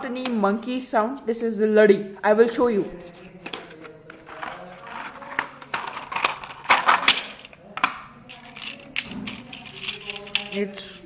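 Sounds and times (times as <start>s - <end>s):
wrapping paper and plastic crinkling: 3.0s - 7.5s, 8.2s - 11.0s.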